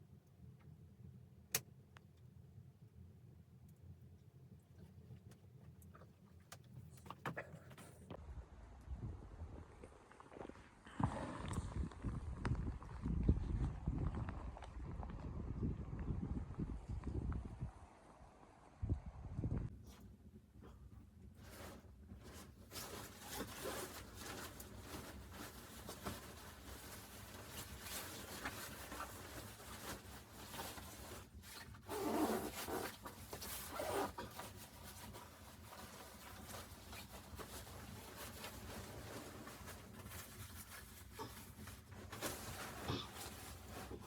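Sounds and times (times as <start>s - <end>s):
rustling handling noises: 21.4s - 44.0s.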